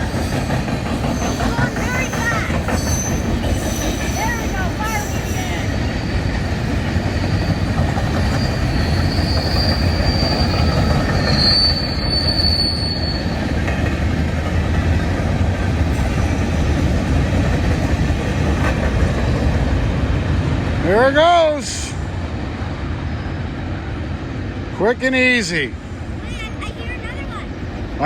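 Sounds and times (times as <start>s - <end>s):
high wheel squeal: 0.0s - 13.6s
train wheels rumbling on rails: 0.0s - 28.0s.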